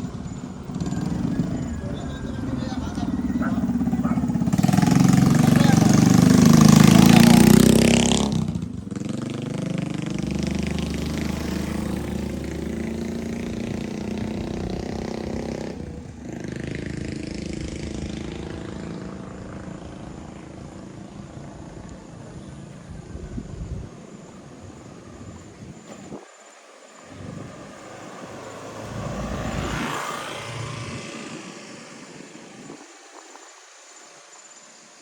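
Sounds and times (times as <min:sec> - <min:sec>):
motor scooter passing: 0:00.0 - 0:35.0.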